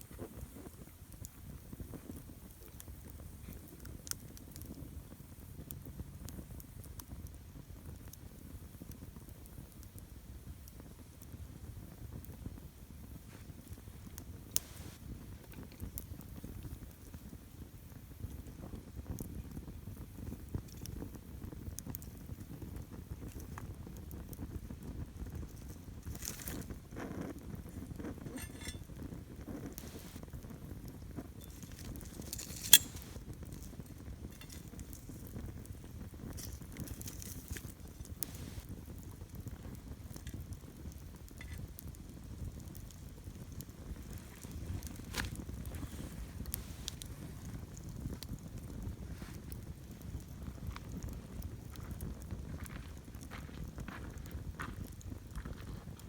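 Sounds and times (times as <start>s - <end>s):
campfire burning: 0.0s - 56.0s
fire crackling and popping: 0.0s - 56.0s.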